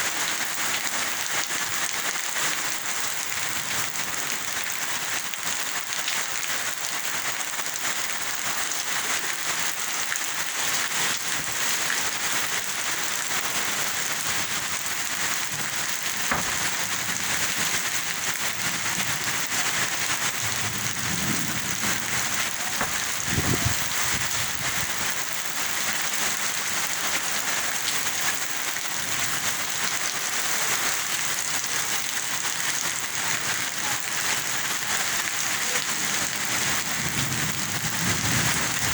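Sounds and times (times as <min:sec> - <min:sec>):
heavy rain pattering: 0:00.0 - 0:38.9
low thuds: 0:15.5 - 0:16.9.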